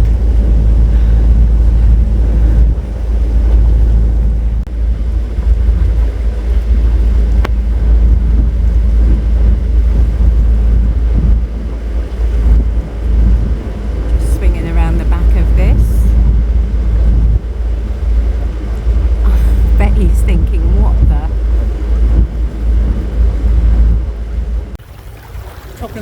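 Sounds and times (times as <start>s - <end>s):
boat engine running: 0.0s - 26.0s
wind buffeting microphone: 0.0s - 26.0s.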